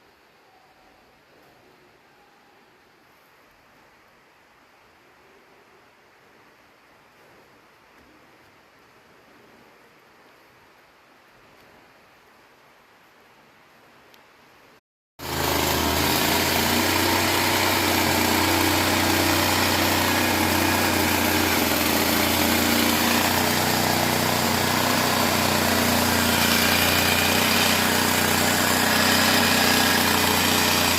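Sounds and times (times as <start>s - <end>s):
small engine running: 15.2s - 30.9s.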